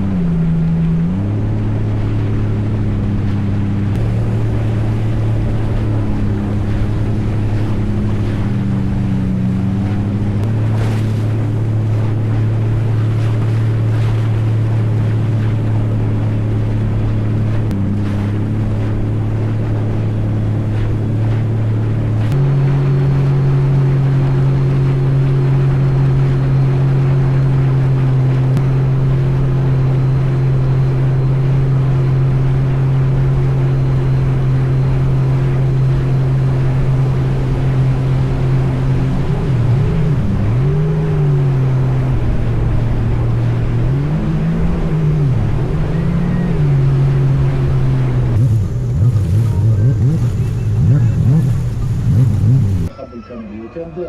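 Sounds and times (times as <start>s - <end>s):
engine droning: 0.0s - 54.0s
rushing noise: 47.4s - 54.0s.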